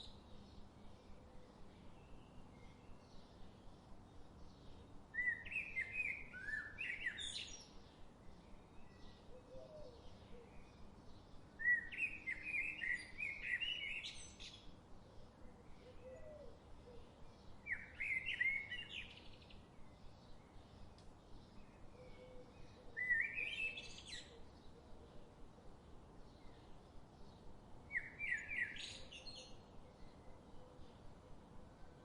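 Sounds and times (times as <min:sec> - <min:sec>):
faint bird chirps: 0:04.6 - 0:07.8, 0:11.6 - 0:14.7, 0:15.3 - 0:24.9, 0:27.9 - 0:31.4.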